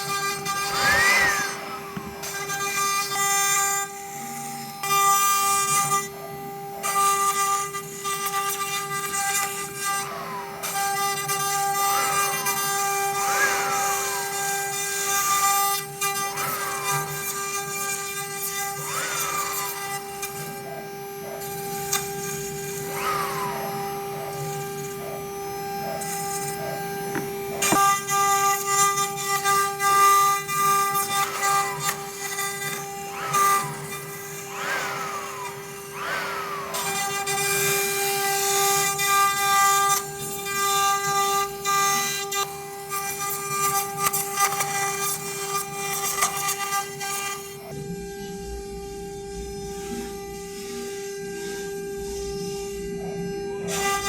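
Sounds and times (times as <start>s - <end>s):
router spindle whining: 0.0s - 54.0s
falling motor tones: 0.1s - 4.0s, 9.2s - 20.7s, 21.4s - 39.5s
bit cutting hiss: 0.4s - 3.2s, 12.0s - 15.1s, 29.4s - 38.4s.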